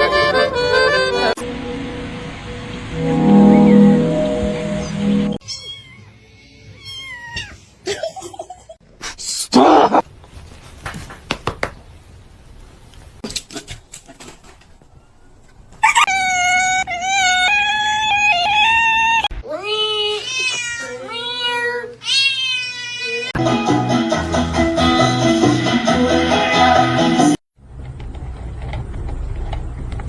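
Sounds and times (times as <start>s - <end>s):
cat yowling: 5.4s - 7.6s, 15.8s - 23.4s
cat meowing: 5.4s - 7.7s, 15.8s - 23.4s.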